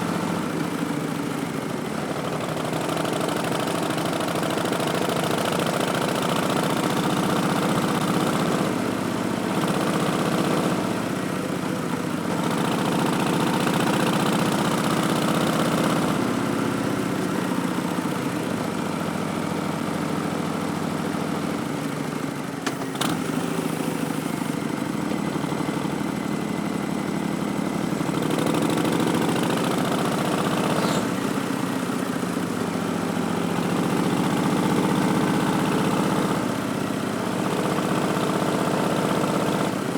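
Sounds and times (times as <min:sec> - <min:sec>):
motorcycle engine revving: 0:00.0 - 0:18.4, 0:19.4 - 0:39.9
short sharp click: 0:22.6 - 0:23.2.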